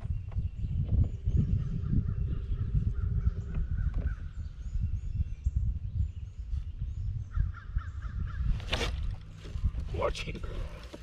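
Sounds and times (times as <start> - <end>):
birds calling: 0.0 - 11.0.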